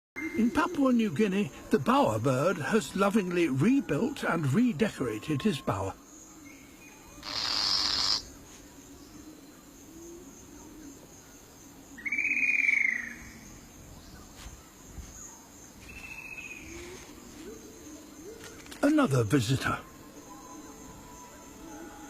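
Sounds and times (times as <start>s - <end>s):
faint insect hum: 0.2s - 22.0s
birds calling: 5.0s - 10.8s
arched bird whistle: 7.2s - 8.3s
harsh rasping bird call: 7.2s - 8.3s.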